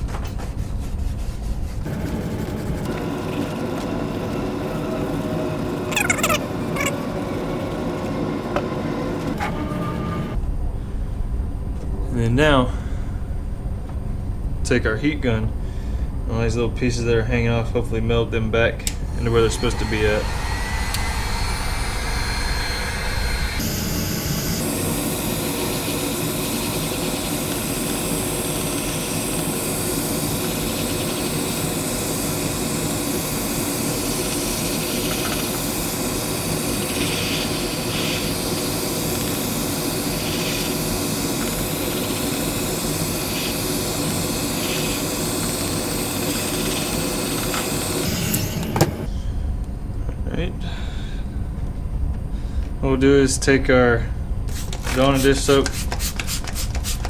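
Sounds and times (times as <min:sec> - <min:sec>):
heat gun blowing hot air: 0:01.8 - 0:10.4, 0:19.2 - 0:49.1.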